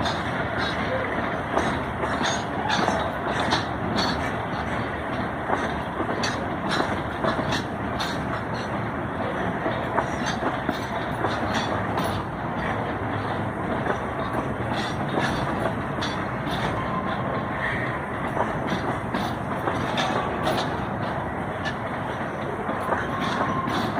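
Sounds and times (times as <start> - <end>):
train wheels rumbling on rails: 0.0 - 23.9
sharp clicks and clacks: 9.6 - 17.4.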